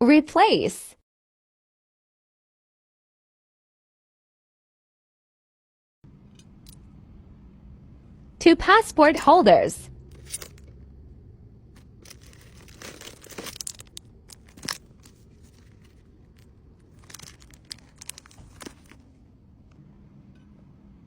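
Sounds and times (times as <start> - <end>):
packaging crinkling and rustling: 11.8 - 19.1.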